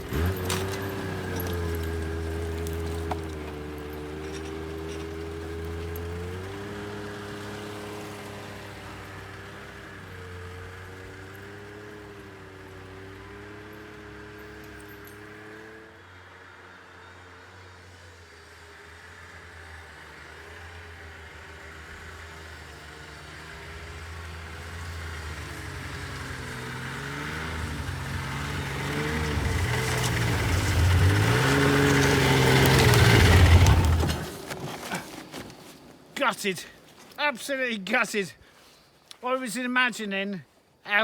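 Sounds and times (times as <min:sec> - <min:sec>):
snowmobile engine labouring: 0:00.0 - 0:38.5.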